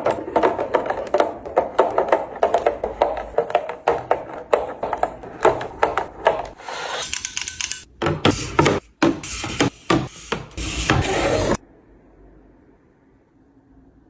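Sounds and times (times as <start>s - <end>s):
containers tapping and clicking: 0.0s - 10.5s.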